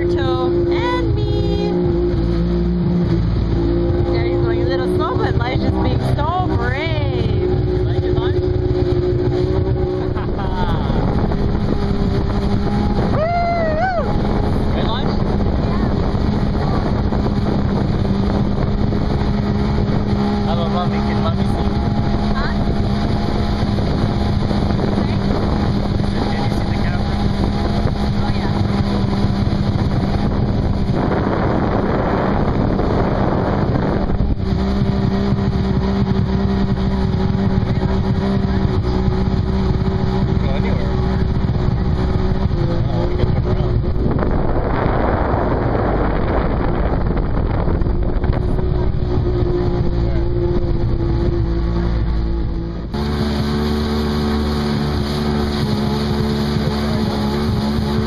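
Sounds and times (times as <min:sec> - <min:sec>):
jet ski engine running: 0:00.0 - 0:58.0
water and hull hiss: 0:00.0 - 0:58.0.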